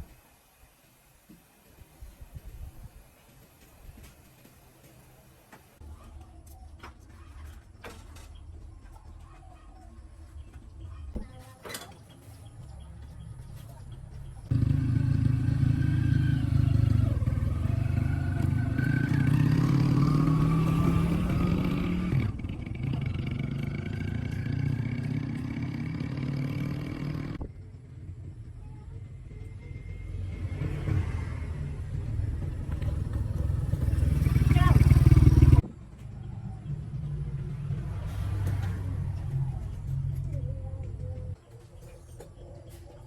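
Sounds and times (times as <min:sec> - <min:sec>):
motorbike engine running: 0:14.2 - 0:41.4.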